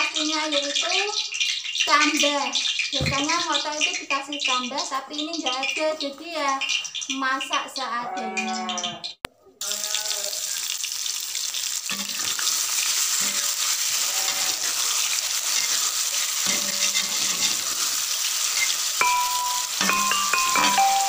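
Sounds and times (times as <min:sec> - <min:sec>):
tofu sizzling in hot oil: 0:00.0 - 0:07.2, 0:09.6 - 0:21.0
metal spatula stirring in wok: 0:11.9 - 0:21.0
light mallet percussion music: 0:19.0 - 0:21.0.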